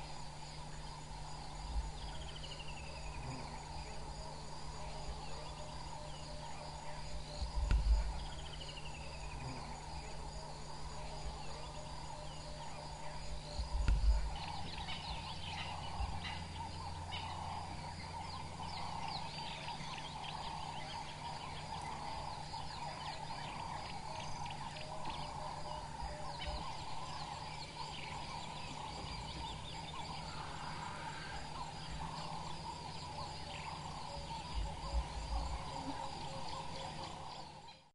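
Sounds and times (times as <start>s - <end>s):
birds chirping: 0.0s - 37.9s
insects trilling: 0.0s - 37.9s
low bumps: 7.4s - 8.4s, 13.5s - 17.7s.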